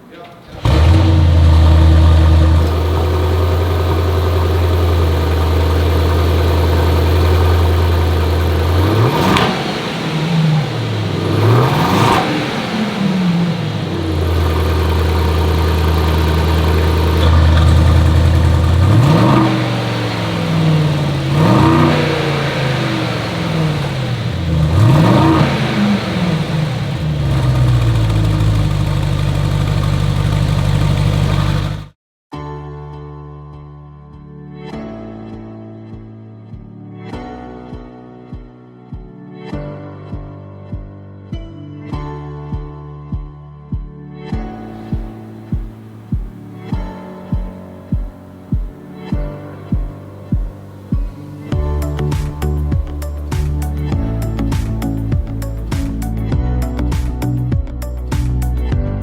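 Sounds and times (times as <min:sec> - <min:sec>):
car engine revving: 0:00.5 - 0:32.0.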